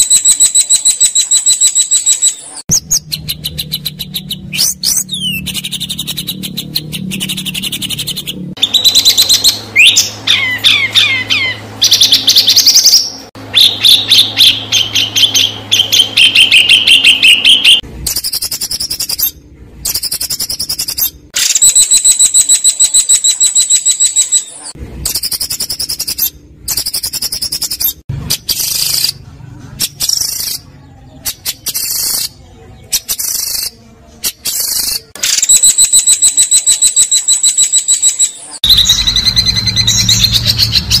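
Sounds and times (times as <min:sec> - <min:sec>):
songbird trills and chatter: 0:29.8 - 0:41.0
low hum: 0:38.6 - 0:41.0.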